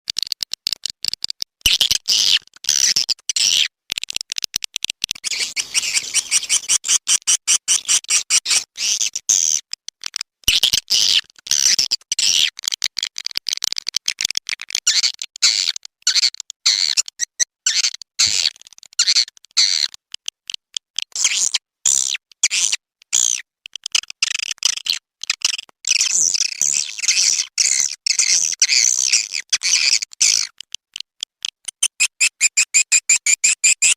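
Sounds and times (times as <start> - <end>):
swiftlets chirping and twittering: 5.2 - 7.0.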